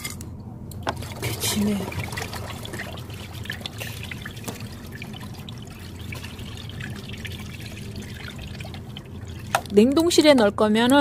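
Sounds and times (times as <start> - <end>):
liquid pouring into plastic bottle: 0.8 - 9.8
small clicks and drips: 2.1 - 10.3.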